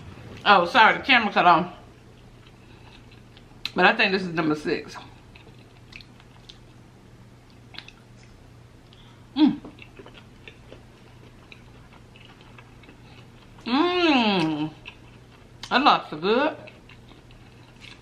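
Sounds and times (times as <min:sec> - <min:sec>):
person chewing food: 0:02.1 - 0:03.8, 0:05.1 - 0:06.8, 0:07.4 - 0:15.7, 0:16.6 - 0:18.0
wet mouth clicks: 0:07.7 - 0:08.0.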